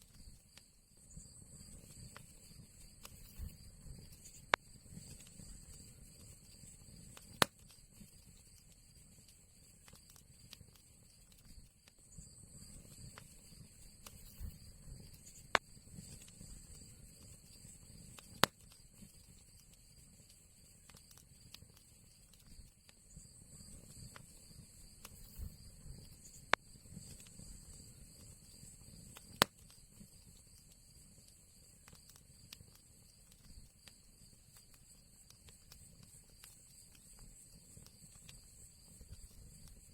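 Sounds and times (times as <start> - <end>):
fire crackling: 0.0 - 39.9
low rumble of flame: 0.0 - 39.9
loud sharp pop from fire: 3.0 - 3.6, 7.1 - 7.8, 18.1 - 18.8, 29.1 - 29.8.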